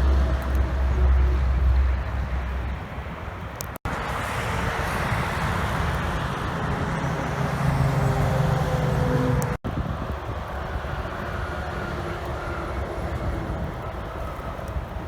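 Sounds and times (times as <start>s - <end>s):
road traffic: 0.0s - 15.0s
heavy vehicle engine passing: 3.9s - 14.2s.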